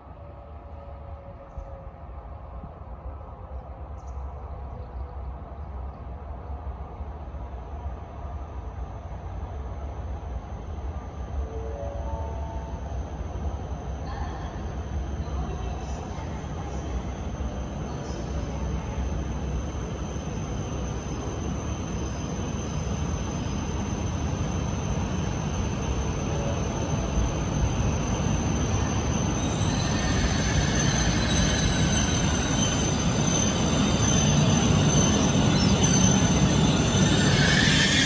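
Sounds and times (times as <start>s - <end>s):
train rumble: 0.0s - 38.0s
brake and wheel squeal: 28.7s - 38.0s.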